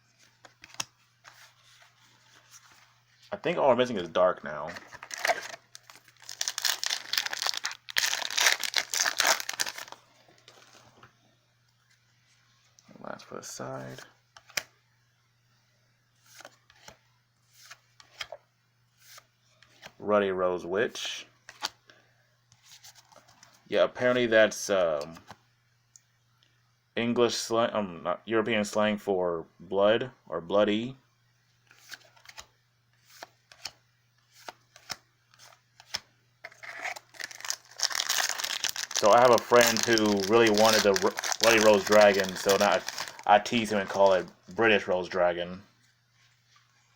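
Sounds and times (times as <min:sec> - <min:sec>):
cards rustling: 0:00.2 - 0:02.9, 0:04.7 - 0:11.0, 0:31.7 - 0:44.7
cards sliding in hands: 0:38.6 - 0:44.3.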